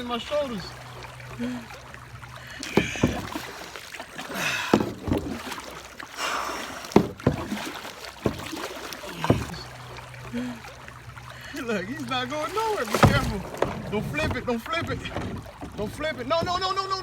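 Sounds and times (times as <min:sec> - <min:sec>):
paddle strokes splashing: 0:00.0 - 0:17.0
sharp knocks: 0:02.7 - 0:03.3, 0:12.8 - 0:16.8.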